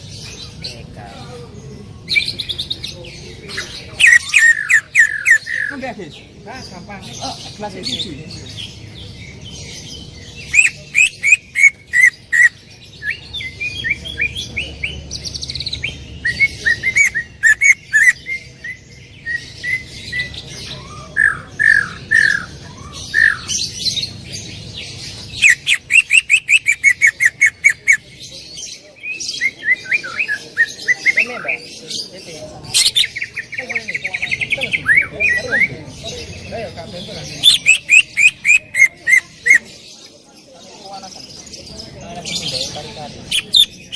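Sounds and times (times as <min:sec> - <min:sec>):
bird singing sharp repeated notes: 0:07.9 - 0:24.5, 0:25.1 - 0:28.1, 0:36.3 - 0:39.7, 0:42.4 - 0:43.9.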